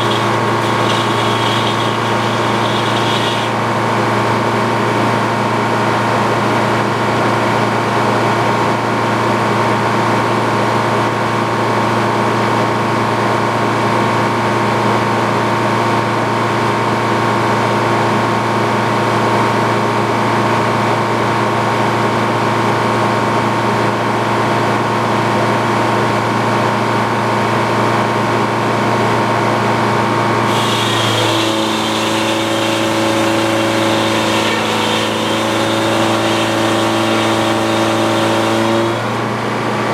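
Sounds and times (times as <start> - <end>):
sawmill running: 0.0 - 6.2, 29.0 - 39.9.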